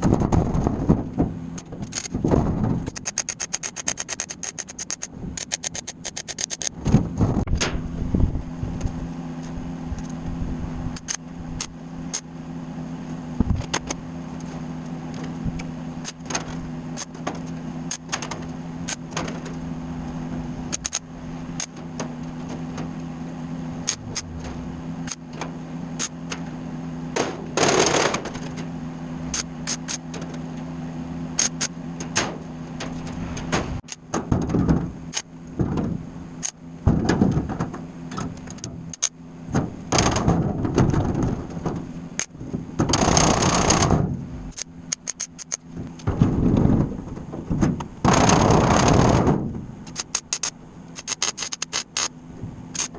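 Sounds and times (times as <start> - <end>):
sharp clicks and knocks: 0.0 - 7.8, 10.9 - 12.3, 13.4 - 19.6, 20.7 - 23.1, 23.8 - 26.5, 27.1 - 28.7, 29.3 - 30.6, 31.4 - 52.9
low machine hum: 0.0 - 52.9
dull thuds: 36.8 - 38.8, 39.5 - 43.0, 45.7 - 49.8.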